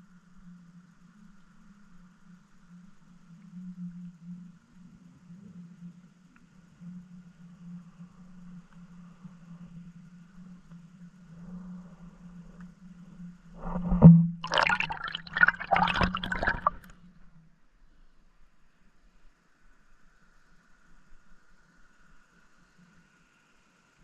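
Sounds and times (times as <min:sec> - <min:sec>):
water splashing and churning: 0:14.4 - 0:16.9.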